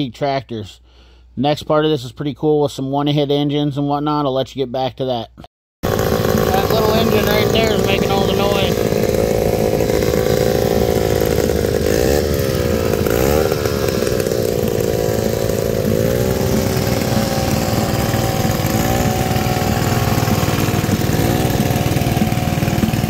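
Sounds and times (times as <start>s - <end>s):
small two-stroke engine running: 5.8s - 23.0s.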